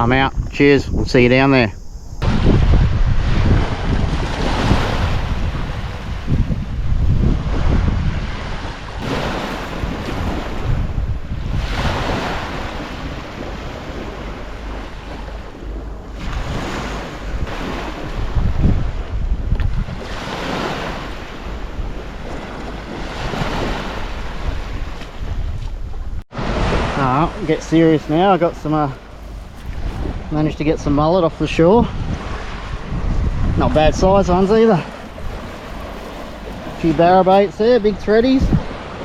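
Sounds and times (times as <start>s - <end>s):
wind buffeting microphone: 0.0s - 39.0s
waves washing on shore: 2.2s - 39.0s.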